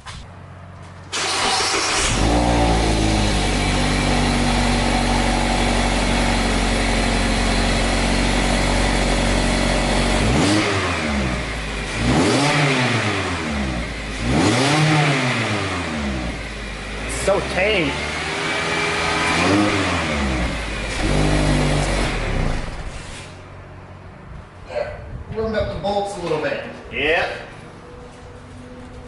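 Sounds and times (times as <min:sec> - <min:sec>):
car engine idling: 0:00.3 - 0:12.2, 0:15.1 - 0:24.2
car engine cranking and starting: 0:00.8 - 0:23.6
car engine revving: 0:01.1 - 0:23.6.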